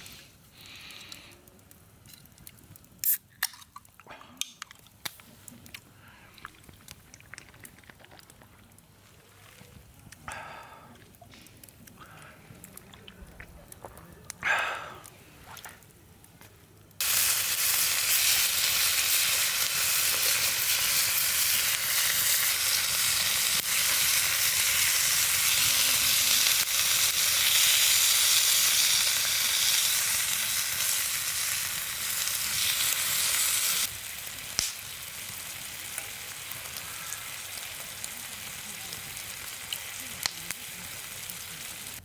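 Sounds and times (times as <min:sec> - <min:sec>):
food sizzling in a pan: 0:17.0 - 0:42.0.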